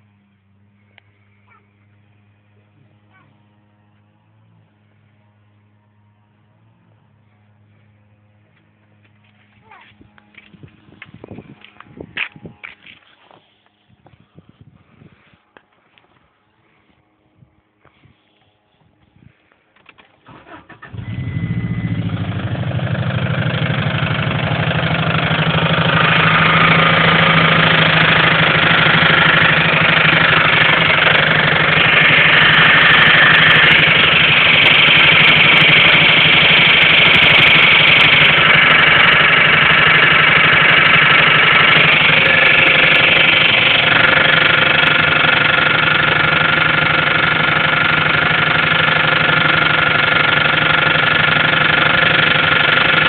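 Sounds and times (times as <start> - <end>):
engine cranking: 19.8 - 53.0
car engine idling with knock: 21.0 - 53.0.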